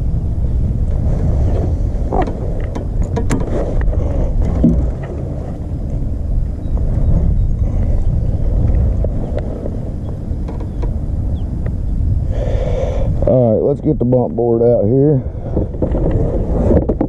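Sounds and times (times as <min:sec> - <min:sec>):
steady low rumble: 0:00.0 - 0:17.0
sharp clicks and knocks: 0:02.1 - 0:05.1, 0:10.4 - 0:11.0.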